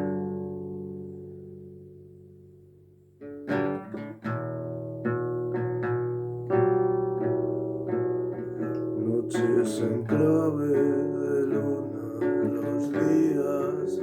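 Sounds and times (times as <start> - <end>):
acoustic guitar: 0.0 - 14.0
person singing: 9.0 - 14.0.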